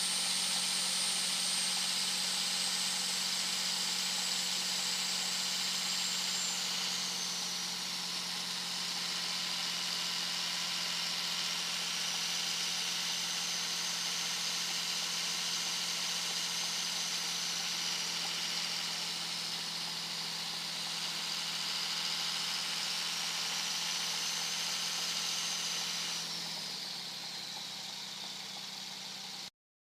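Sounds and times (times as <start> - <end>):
turbocharger whistle: 0.0 - 29.5
diesel engine drone: 4.5 - 29.5.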